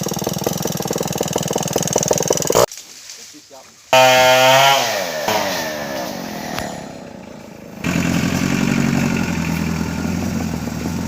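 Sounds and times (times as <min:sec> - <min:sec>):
chainsaw winding down: 0:00.0 - 0:02.7, 0:03.9 - 0:11.0
engine idling: 0:00.0 - 0:02.7, 0:06.3 - 0:11.0.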